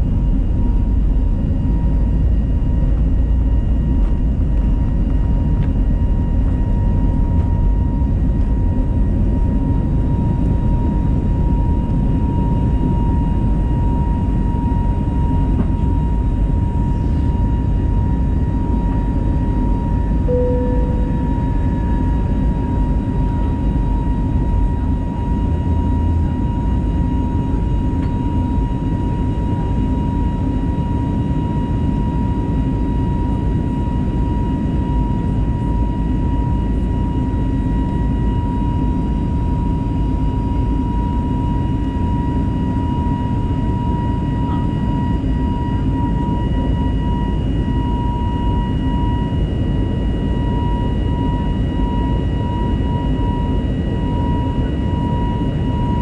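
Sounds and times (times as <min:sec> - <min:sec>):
constant engine whine: 0:00.0 - 0:56.0
jet engine cabin rumble: 0:00.0 - 0:56.0.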